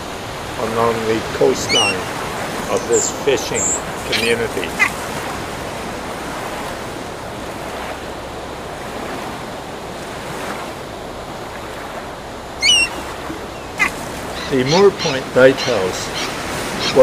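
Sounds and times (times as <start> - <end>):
ocean surf breaking: 0.0 - 17.0
shrill bird call: 1.6 - 2.1, 12.6 - 17.0.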